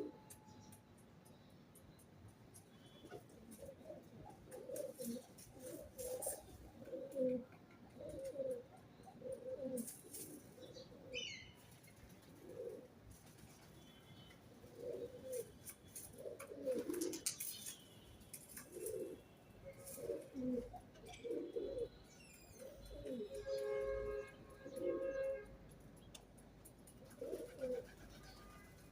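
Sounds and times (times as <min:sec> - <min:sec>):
pigeons cooing: 0:03.0 - 0:13.0, 0:14.6 - 0:17.6, 0:18.6 - 0:22.0, 0:22.6 - 0:25.4, 0:27.0 - 0:28.4
bird chirp: 0:07.9 - 0:12.7, 0:13.6 - 0:25.4.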